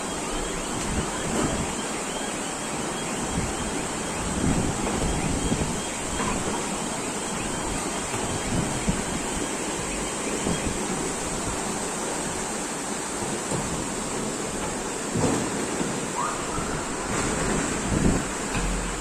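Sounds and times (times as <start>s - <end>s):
rushing floodwater: 0.0s - 19.0s
wind on microphone: 3.2s - 11.8s, 13.6s - 19.0s.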